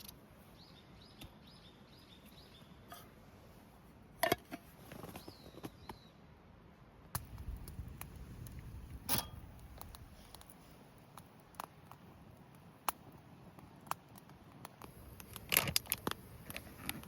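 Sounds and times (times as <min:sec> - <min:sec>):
small bird chirping: 0:00.0 - 0:02.9, 0:05.0 - 0:06.2.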